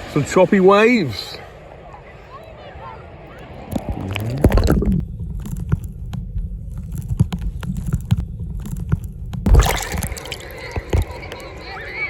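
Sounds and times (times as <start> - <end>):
muffled underwater rumbling: 3.6 - 11.4
water splash: 3.7 - 5.0, 9.5 - 11.4.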